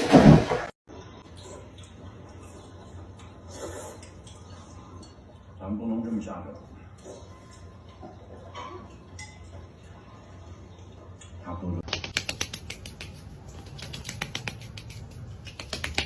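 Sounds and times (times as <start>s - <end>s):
quick clicking taps: 11.8s - 16.0s.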